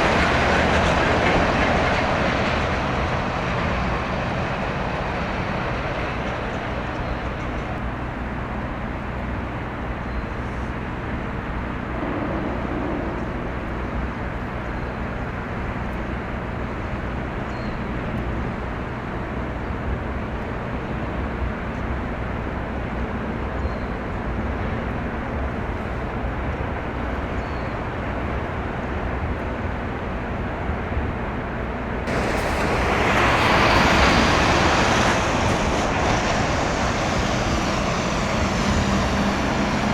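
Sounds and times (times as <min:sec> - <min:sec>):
ship diesel engine drone: 0:08.0 - 0:15.7
outdoor rushing noise: 0:10.6 - 0:14.6, 0:32.0 - 0:39.9
rushing swell: 0:11.7 - 0:14.2, 0:32.1 - 0:39.9.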